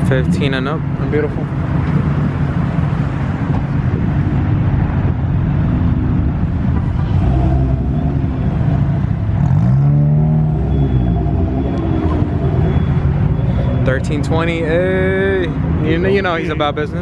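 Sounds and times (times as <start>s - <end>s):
car engines running: 0.0s - 17.0s
car engine revving: 3.9s - 16.0s.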